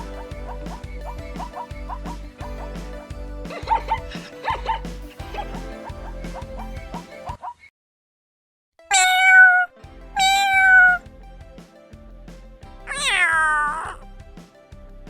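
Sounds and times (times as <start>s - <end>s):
quiet background music: 0.0s - 7.5s, 8.9s - 15.0s
cat meowing: 8.9s - 11.0s, 12.9s - 14.0s.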